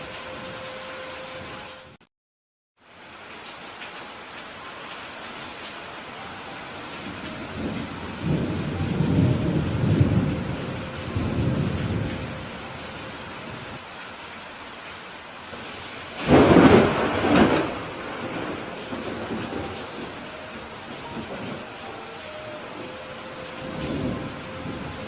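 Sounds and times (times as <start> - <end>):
steady rain: 0.0 - 2.0, 2.8 - 25.0
thunder rumbling: 7.0 - 13.8, 15.5 - 25.0
sharp thunderclap: 16.2 - 20.2.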